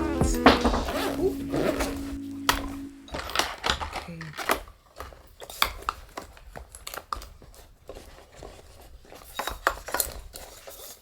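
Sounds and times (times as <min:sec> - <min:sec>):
rustling: 0:00.0 - 0:11.0
small objects clicking and knocking: 0:03.1 - 0:07.6.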